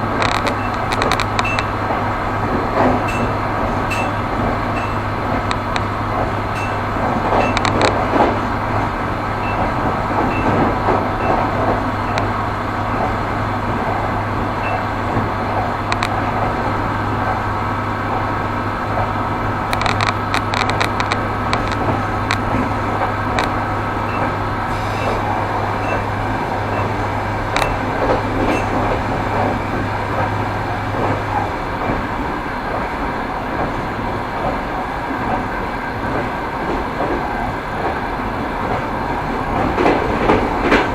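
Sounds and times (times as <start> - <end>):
train wheels knocking over rail joints: 0.0 - 40.9
sharp clicks: 19.7 - 22.6.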